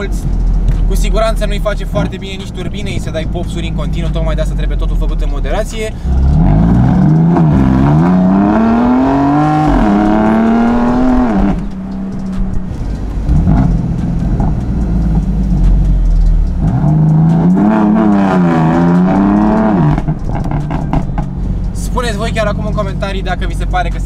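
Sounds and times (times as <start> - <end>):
car engine accelerating: 0.0 - 24.0
exhaust pops: 9.5 - 24.0.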